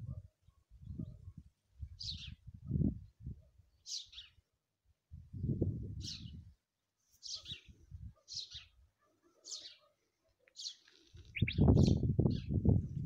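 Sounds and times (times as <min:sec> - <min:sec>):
small bird chirping: 0:07.2 - 0:07.7, 0:10.5 - 0:12.6.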